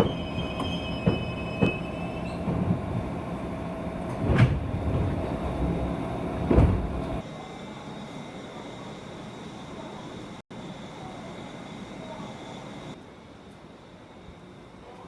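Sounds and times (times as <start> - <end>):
wheel squeal: 0.0 - 2.6
train running rumble: 0.0 - 7.2
steady train hum: 0.0 - 15.0.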